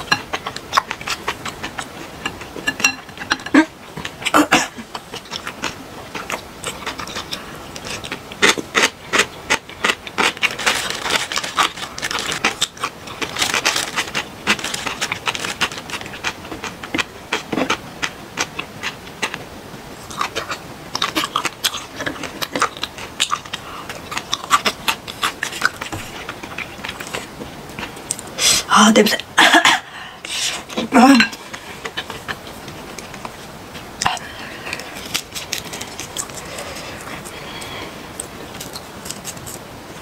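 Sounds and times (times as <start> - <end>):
close chewing crunches: 0.0 - 28.6, 30.3 - 40.0
chopsticks tapping on plate: 1.7 - 3.6.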